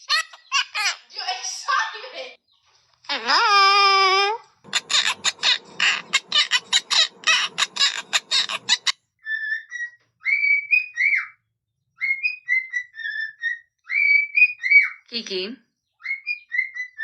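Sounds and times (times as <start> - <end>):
parrot squawking: 4.7 - 8.9
parrot whistled chirps: 4.7 - 11.4, 12.0 - 15.0.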